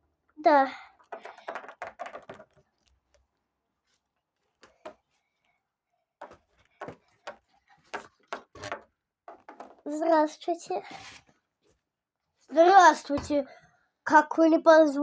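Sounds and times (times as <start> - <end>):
plastic toy figures clicking: 1.0 - 2.6.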